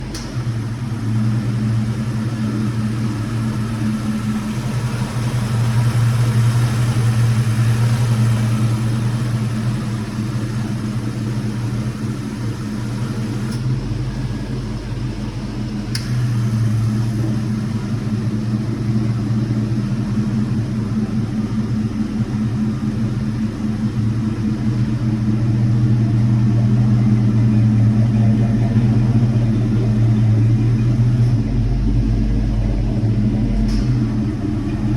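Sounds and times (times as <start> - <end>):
truck engine droning: 0.0 - 34.9
brief clicks: 15.9 - 16.2.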